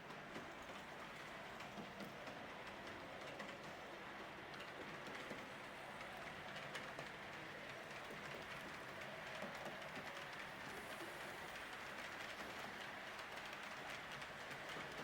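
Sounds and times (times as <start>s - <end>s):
model train rolling on track: 0.0s - 15.0s.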